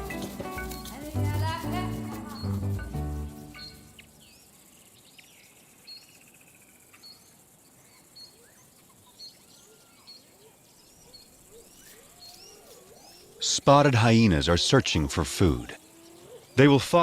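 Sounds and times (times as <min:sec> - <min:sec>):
short high bird chirp: 0:03.4 - 0:04.1
birds whistling softly: 0:03.5 - 0:06.2, 0:06.9 - 0:13.4.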